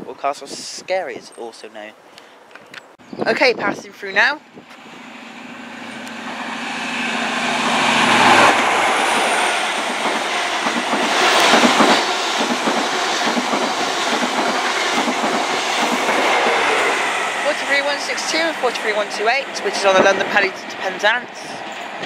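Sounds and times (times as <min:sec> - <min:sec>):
diesel train engine passing: 0:04.4 - 0:22.0
train wheels clattering over rail joints: 0:08.2 - 0:16.4.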